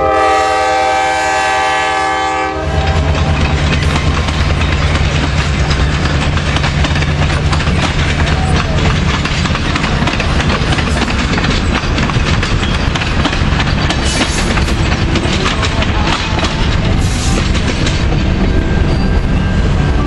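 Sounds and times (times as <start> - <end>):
low train rumble: 0.0 - 20.0
train wheels clacking over rail joints: 1.4 - 20.0.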